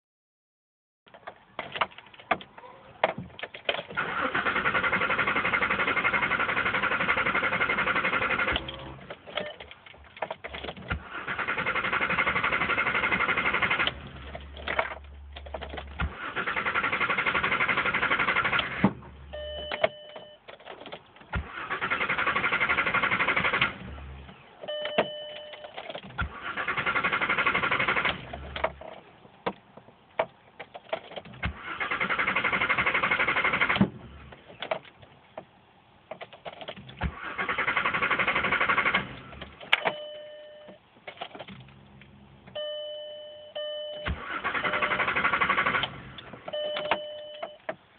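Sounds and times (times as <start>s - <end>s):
starter motor cranking: 4.0s - 9.0s
electronic beeps: 19.3s - 20.4s, 46.6s - 47.6s.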